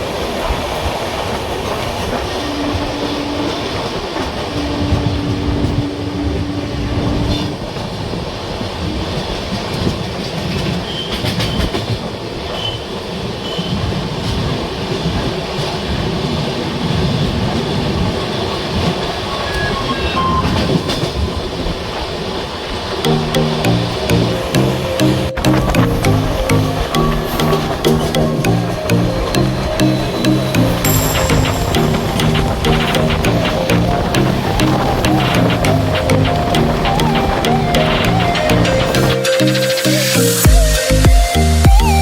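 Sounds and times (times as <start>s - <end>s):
train wheels clattering over rails: 6.7s - 19.3s, 29.8s - 39.0s
held low tone: 23.0s - 42.0s.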